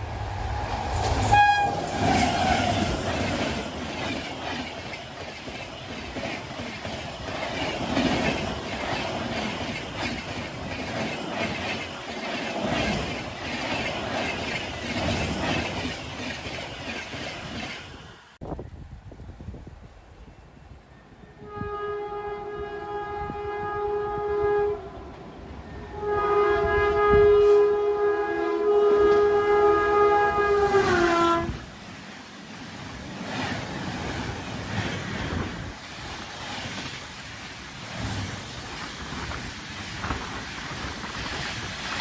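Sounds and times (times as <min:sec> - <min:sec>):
passing train rushing and rattling: 0:00.0 - 0:42.0
locomotive horn blasts: 0:01.2 - 0:02.7, 0:21.4 - 0:25.0, 0:25.8 - 0:31.6.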